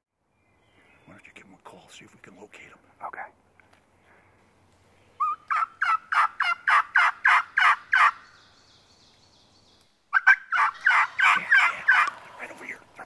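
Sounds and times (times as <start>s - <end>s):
turkey hunting call: 5.2s - 8.2s, 10.1s - 13.0s.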